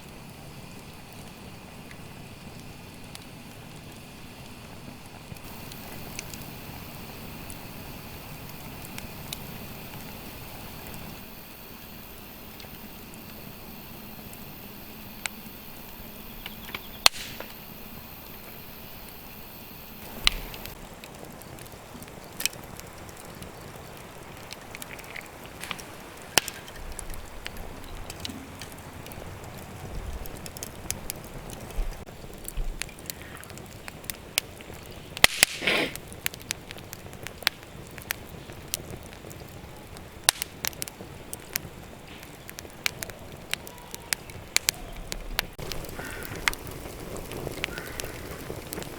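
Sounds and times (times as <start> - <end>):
campfire crackling and snapping: 0.0 - 48.9.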